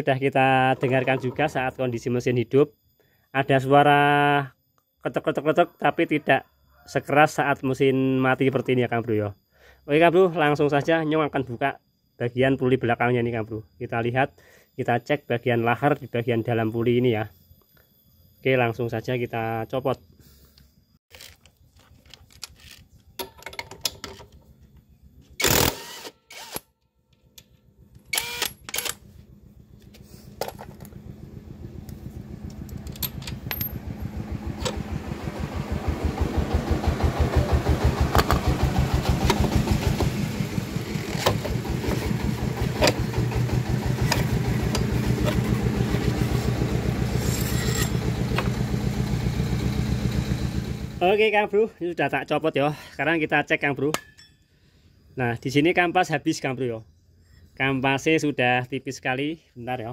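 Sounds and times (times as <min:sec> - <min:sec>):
motorcycle engine running: 0:29.0 - 0:51.0
metal tool clinks and knocks: 0:53.9 - 0:54.5.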